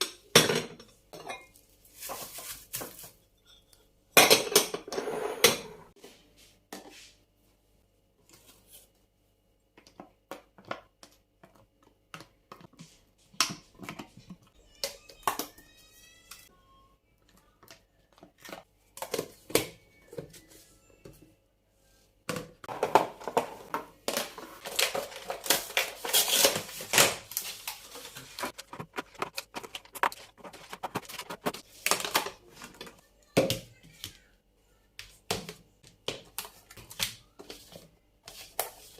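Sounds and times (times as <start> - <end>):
plastic crinkling and rustling: 1.5 - 3.2, 24.1 - 32.9
containers being set down: 22.3 - 25.4.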